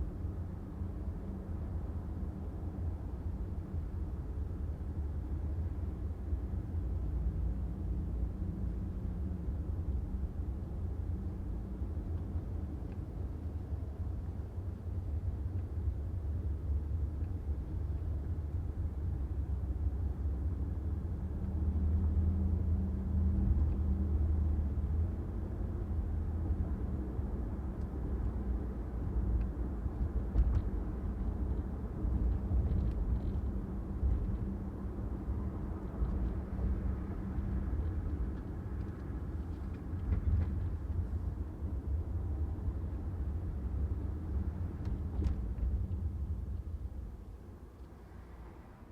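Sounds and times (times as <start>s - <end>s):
car engine and tyre rumble: 0.0s - 48.9s.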